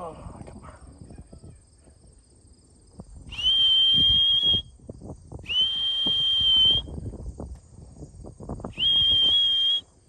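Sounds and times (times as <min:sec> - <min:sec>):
long high whistles: 0:03.3 - 0:04.8, 0:05.4 - 0:07.0, 0:08.7 - 0:09.9.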